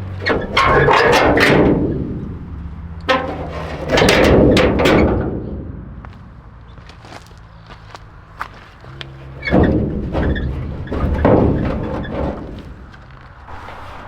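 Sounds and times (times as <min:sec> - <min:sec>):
scraping and rattling: 0:00.0 - 0:14.0.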